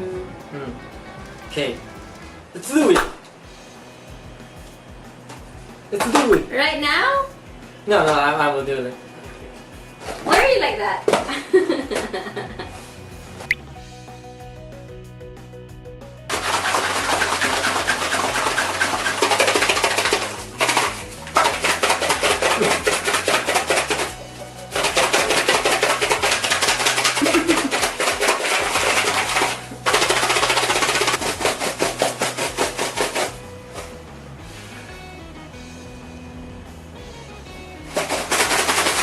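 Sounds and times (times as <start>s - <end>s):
faint background music: 0.0s - 39.0s
snacks rattling in boxes: 16.3s - 33.3s, 37.9s - 39.0s.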